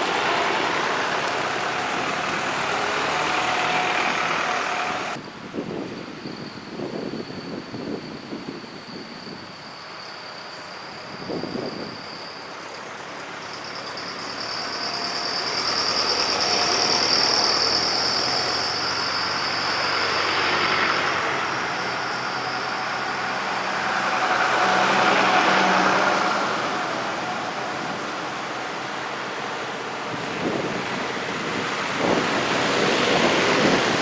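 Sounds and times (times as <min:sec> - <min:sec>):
tractor engines passing by: 0:00.0 - 0:34.0.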